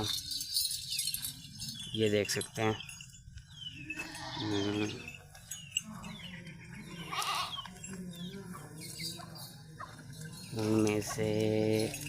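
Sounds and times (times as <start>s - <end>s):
goats bleating: 3.9s - 5.0s, 6.9s - 7.8s.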